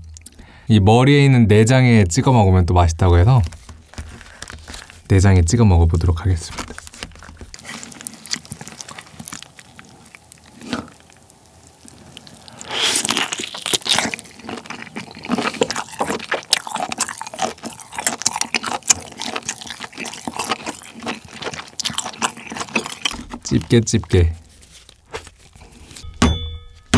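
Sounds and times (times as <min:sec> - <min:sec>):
wet chewing and lip-smacking: 0:06.6 - 0:26.0.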